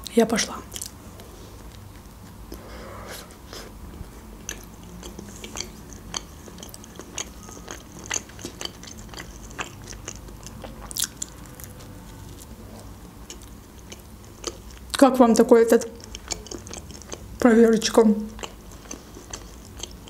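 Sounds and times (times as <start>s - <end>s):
crisp chewing crunches: 4.5s - 12.5s, 18.3s - 20.0s.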